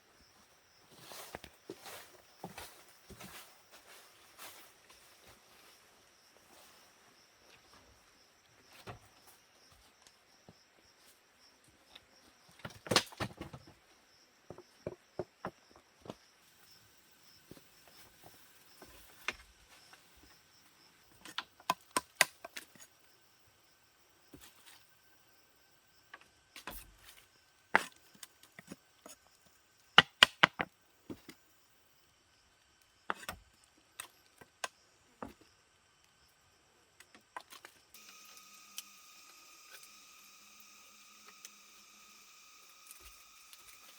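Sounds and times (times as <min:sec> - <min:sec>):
insects droning: 0:00.0 - 0:43.9
wood knocking and cracking: 0:12.6 - 0:13.8, 0:30.0 - 0:31.4.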